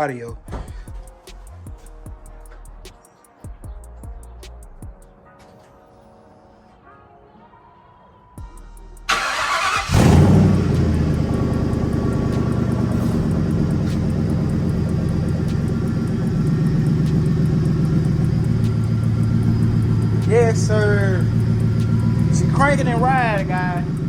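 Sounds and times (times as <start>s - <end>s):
car engine revving and idling: 9.0s - 24.0s
car starter cranking: 9.1s - 24.0s.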